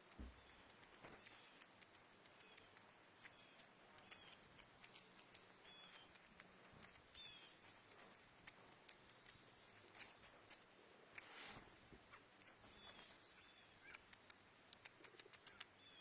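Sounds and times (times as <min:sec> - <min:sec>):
birds chirping softly: 0:00.0 - 0:16.0.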